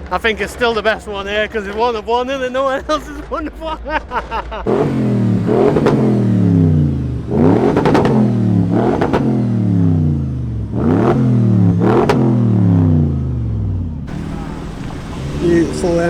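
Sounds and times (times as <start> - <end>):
car engine revving: 4.1 - 16.0.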